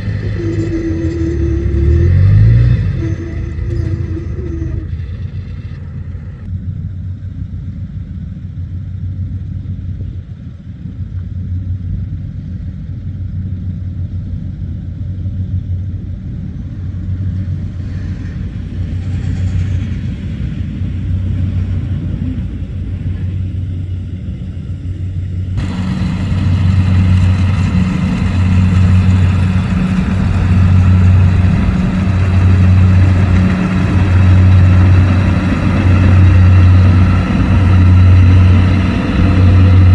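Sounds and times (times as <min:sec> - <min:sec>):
rushing machine noise: 0:00.0 - 0:06.5, 0:25.5 - 0:39.9
diesel engine humming: 0:00.0 - 0:39.9.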